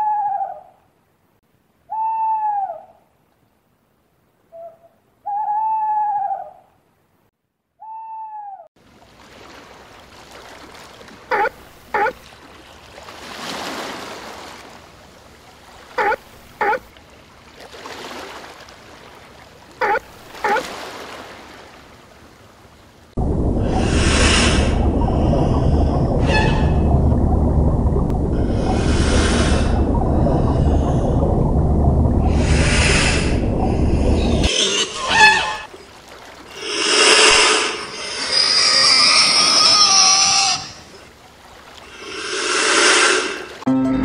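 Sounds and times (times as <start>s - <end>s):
owl hooting: 1.9s - 2.9s, 4.6s - 6.6s, 34.4s - 35.7s
seal barking: 11.3s - 12.2s, 16.0s - 16.9s, 19.8s - 20.7s, 34.4s - 35.7s
surf rushing: 23.2s - 43.7s.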